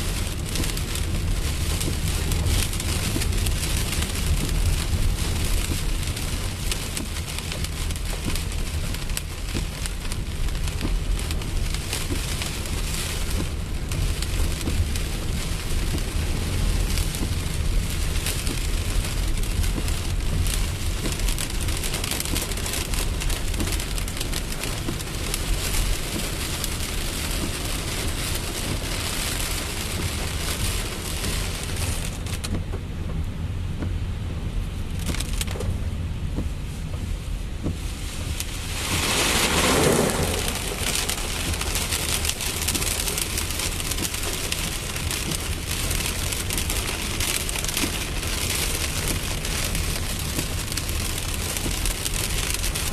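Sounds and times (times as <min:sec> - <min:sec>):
rain falling steadily: 0:00.0 - 0:52.9
whoosh: 0:38.4 - 0:43.0.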